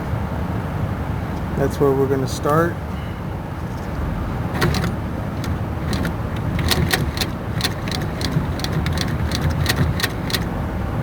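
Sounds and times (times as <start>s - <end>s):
sewing machine motor hum: 4.6s - 10.5s
sewing needle clicking: 4.6s - 10.5s.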